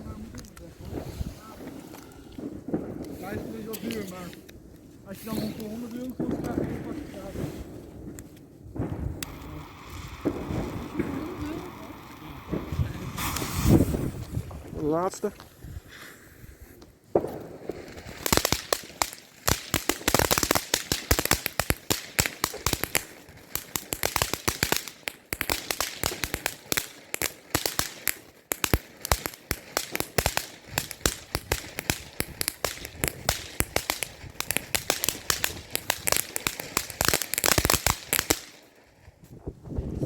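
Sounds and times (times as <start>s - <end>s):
firework crackling pops: 0.0s - 40.0s.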